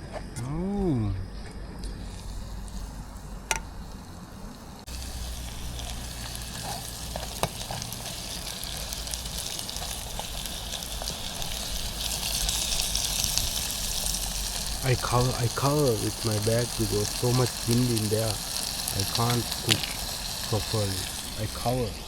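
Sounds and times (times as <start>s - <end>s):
food sizzling in a pan: 4.9s - 22.0s.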